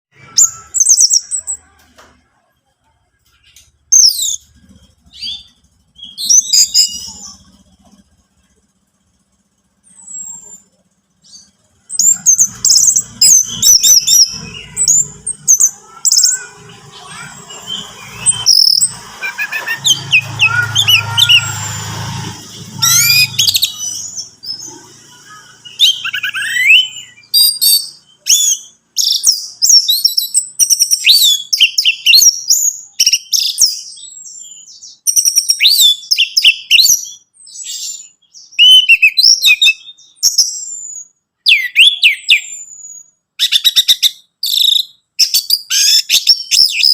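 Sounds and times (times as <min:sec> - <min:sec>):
thrush singing: 0:11.2 - 0:28.0.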